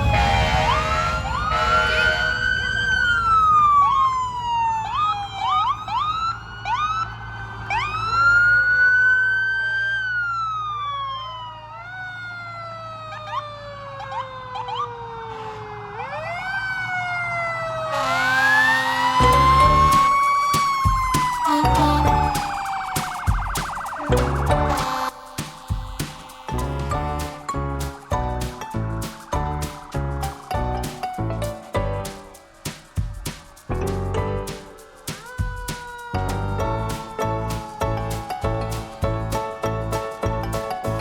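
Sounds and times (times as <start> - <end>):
loud horn blare: 0.0 - 3.2, 17.8 - 20.0, 21.4 - 22.8
siren whoops: 0.0 - 26.6, 35.2 - 38.8
fire truck sirens wailing: 0.0 - 31.7, 34.1 - 41.0
low engine hum: 21.4 - 25.1.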